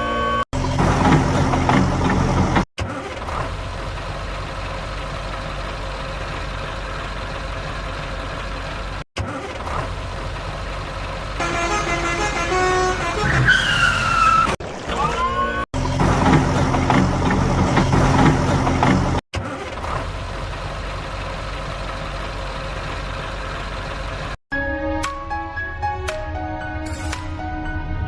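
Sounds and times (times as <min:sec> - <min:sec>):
vehicle engine running: 0:00.6 - 0:13.3, 0:15.8 - 0:24.4.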